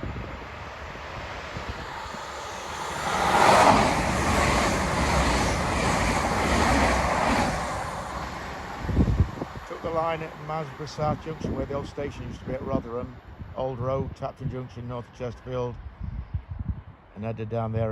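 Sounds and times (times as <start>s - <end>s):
passenger train passing at speed: 0.0s - 14.1s.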